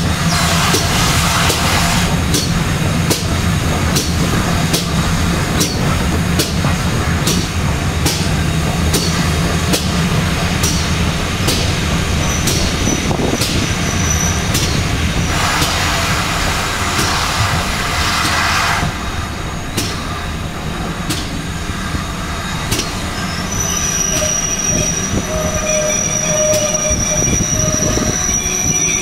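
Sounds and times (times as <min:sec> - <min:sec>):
train rumbling: 0:00.0 - 0:29.0
wheels clicking over rail joints: 0:02.2 - 0:15.8
hissing rush: 0:09.2 - 0:20.4.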